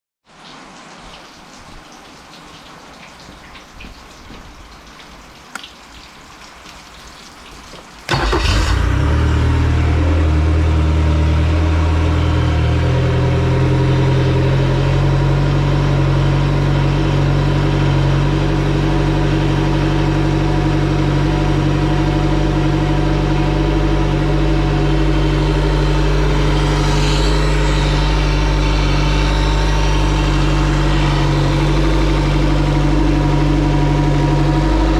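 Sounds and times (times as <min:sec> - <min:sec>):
outboard motor starting and idling: 0:08.1 - 0:34.9.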